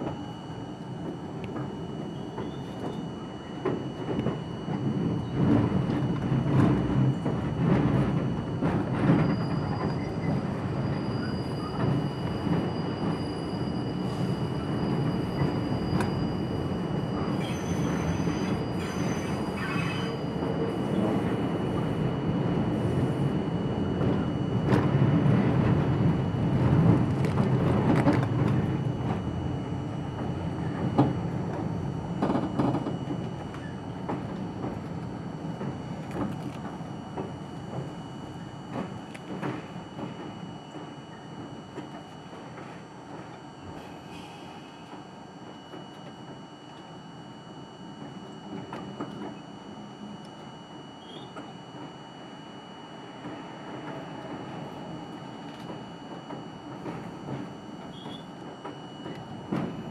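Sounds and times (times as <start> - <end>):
subway wheel-on-rail rumble: 0.0 - 59.9
high wheel squeal: 17.2 - 21.0, 57.8 - 58.4.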